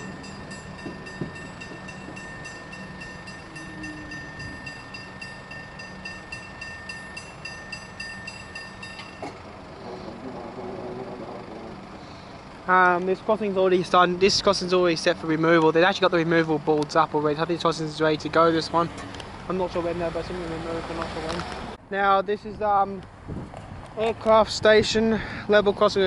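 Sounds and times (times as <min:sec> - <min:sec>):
level crossing bells ringing: 0:00.0 - 0:09.7.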